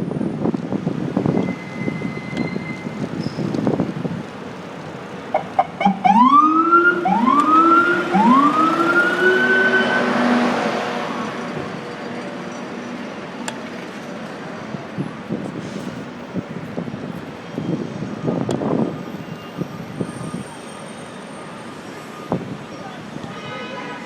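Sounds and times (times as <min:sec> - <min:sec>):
wind and road noise: 0:00.0 - 0:24.0
emergency vehicle siren: 0:05.3 - 0:11.8, 0:17.6 - 0:23.1.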